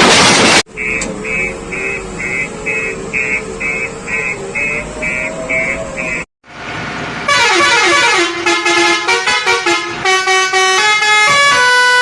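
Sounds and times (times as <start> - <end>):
loud horn playing a quick tune: 7.3 - 12.0.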